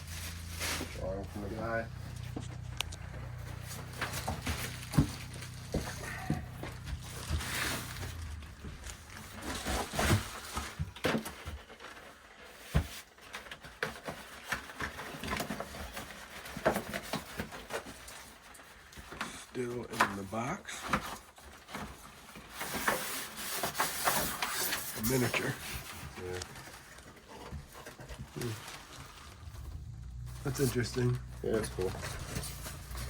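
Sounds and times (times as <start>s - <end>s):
low steady hum: 0.0s - 10.3s, 28.2s - 33.0s
boxes rustling and knocking: 0.0s - 33.0s.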